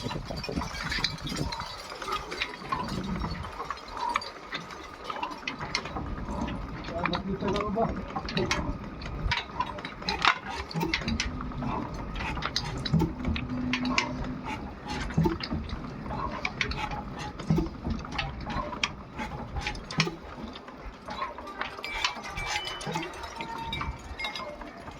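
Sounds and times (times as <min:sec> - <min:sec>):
mechanical clicking and clatter: 0:00.0 - 0:24.9
diesel engine low thuds: 0:10.2 - 0:20.3.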